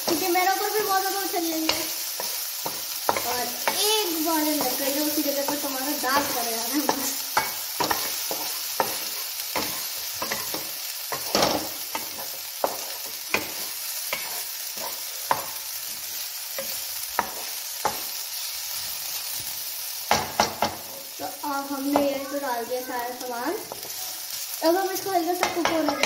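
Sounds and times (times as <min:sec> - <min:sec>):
vegetables sizzling in oil: 0:00.0 - 0:26.0
spatula scraping a pan: 0:01.5 - 0:19.6.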